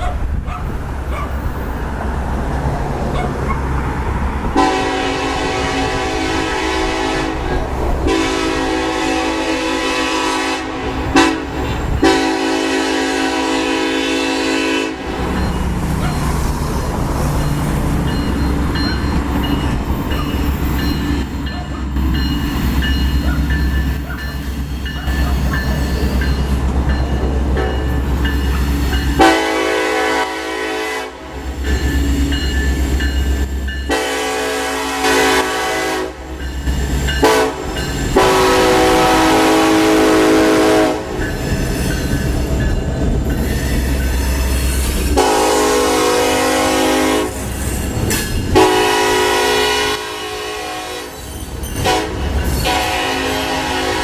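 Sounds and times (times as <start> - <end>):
locomotive engine rumble: 0.0 - 54.0
train air horn blasts: 4.6 - 15.3, 29.1 - 31.6, 33.8 - 36.4, 37.2 - 41.2, 44.2 - 47.6, 48.5 - 54.0.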